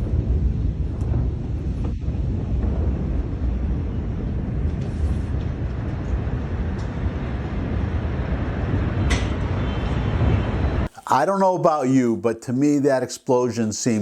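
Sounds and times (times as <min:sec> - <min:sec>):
steady low rumble: 0:00.0 - 0:10.9
wind on microphone: 0:00.0 - 0:10.9.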